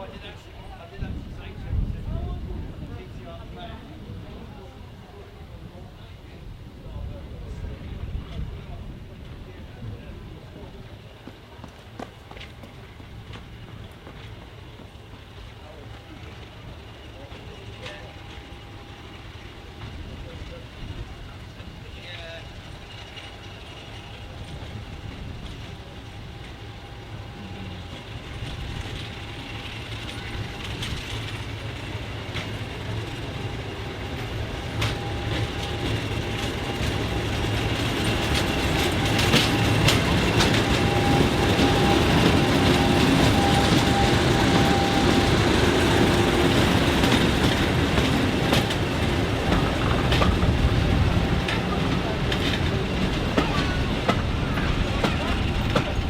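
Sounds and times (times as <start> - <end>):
train approaching: 0.0 - 56.0
wheels clicking on track: 7.0 - 56.0.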